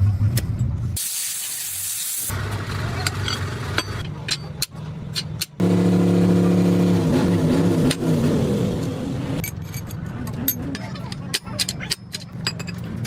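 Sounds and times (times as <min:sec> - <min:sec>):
loud motor drone: 0:05.6 - 0:09.4.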